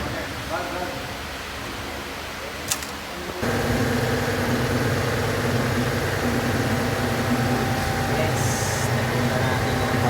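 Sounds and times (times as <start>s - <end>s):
engine idling: 3.4s - 10.0s.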